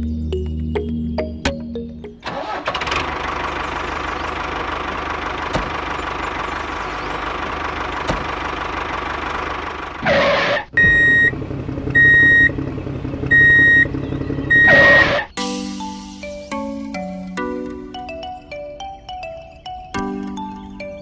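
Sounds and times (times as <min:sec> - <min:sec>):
loud beeps: 0:10.1 - 0:11.3, 0:12.0 - 0:12.5, 0:13.3 - 0:13.9, 0:14.5 - 0:15.3.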